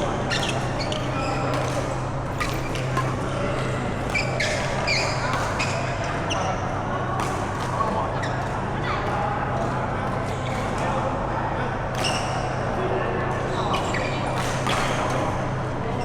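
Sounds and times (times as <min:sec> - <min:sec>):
shoes squeaking on court floor: 0:00.0 - 0:06.7, 0:07.8 - 0:08.7, 0:12.0 - 0:12.6, 0:13.5 - 0:15.2
racket hitting shuttlecock: 0:14.4 - 0:15.2.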